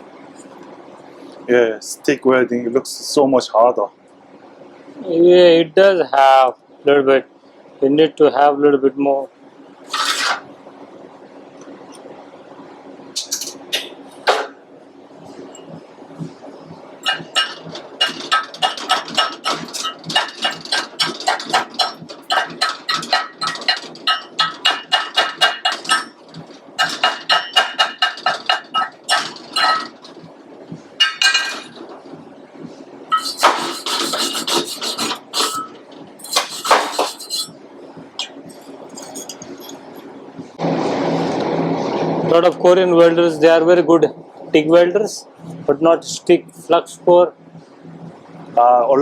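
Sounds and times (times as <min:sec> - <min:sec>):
harsh scraping on metal: 0:09.9 - 0:10.5, 0:33.1 - 0:37.6
hammer striking steel: 0:17.0 - 0:26.2, 0:26.8 - 0:29.9.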